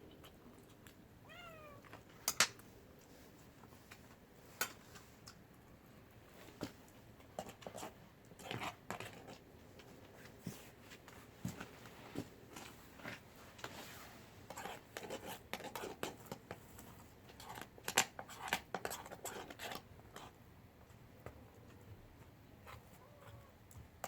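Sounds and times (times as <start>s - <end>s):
cat meowing: 1.2s - 1.9s, 22.9s - 23.6s.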